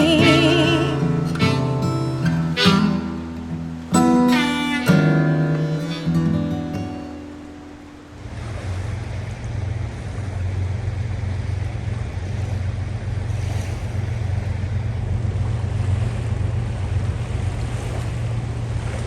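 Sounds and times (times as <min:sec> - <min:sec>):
rushing noise with low rumble: 0:08.2 - 0:19.0.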